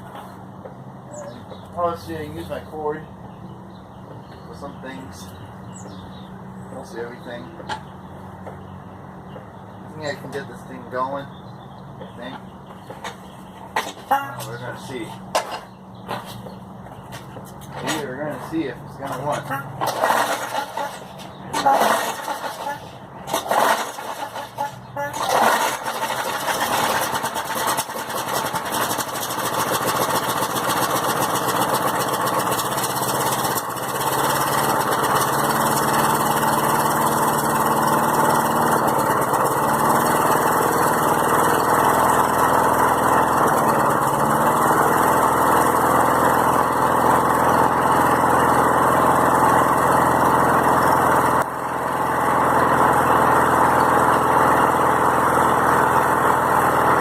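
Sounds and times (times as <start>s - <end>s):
lawnmower engine running: 12.2s - 57.0s.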